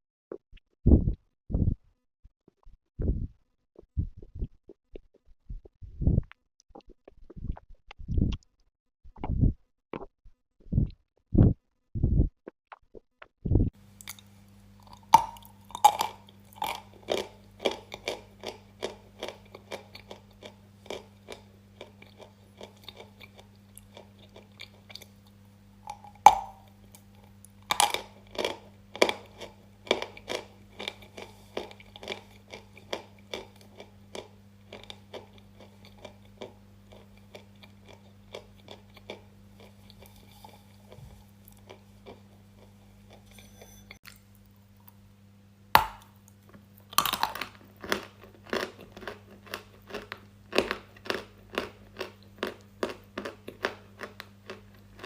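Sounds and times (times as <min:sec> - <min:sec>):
steady low hum: 0:00.8 - 0:01.8, 0:03.0 - 0:04.7, 0:05.5 - 0:06.3, 0:09.2 - 0:09.6, 0:10.7 - 0:12.4, 0:13.4 - 0:55.0
crunchy food chewing: 0:14.0 - 0:45.0, 0:45.8 - 0:55.0.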